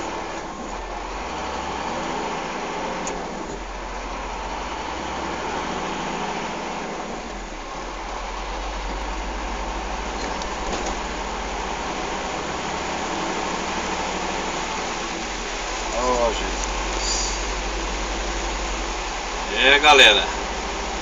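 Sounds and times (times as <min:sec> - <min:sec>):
truck engine droning: 0:00.0 - 0:21.0.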